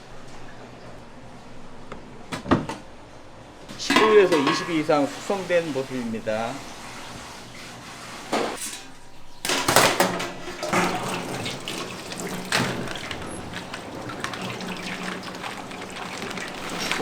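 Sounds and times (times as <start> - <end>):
tap water gushing into sink: 3.7 - 17.0.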